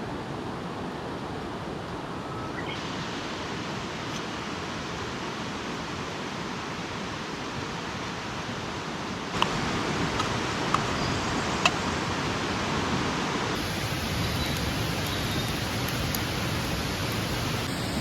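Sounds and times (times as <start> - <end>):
mountain stream rushing: 2.7 - 18.0
campfire popping: 9.3 - 12.0, 13.5 - 18.0.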